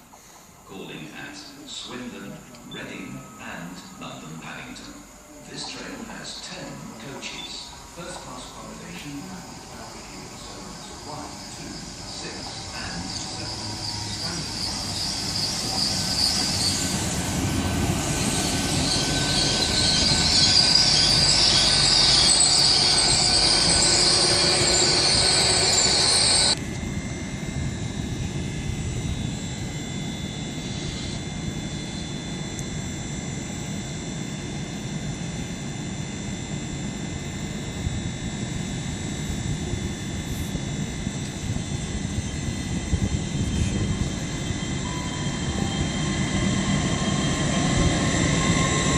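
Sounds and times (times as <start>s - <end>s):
train rumble: 0.0s - 35.8s, 36.7s - 48.9s
faint steady tones: 0.0s - 48.9s
train wheel squeal: 7.2s - 27.1s, 29.3s - 34.1s, 37.2s - 48.9s.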